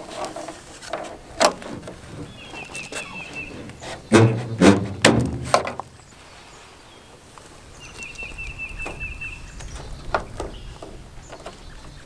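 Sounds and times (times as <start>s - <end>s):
bird trill: 2.3s - 4.4s.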